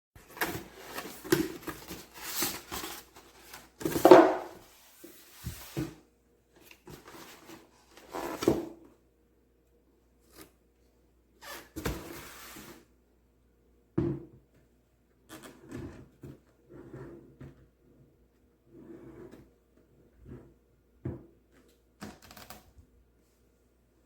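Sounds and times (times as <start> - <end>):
knocking of objects: 3.9 - 4.6.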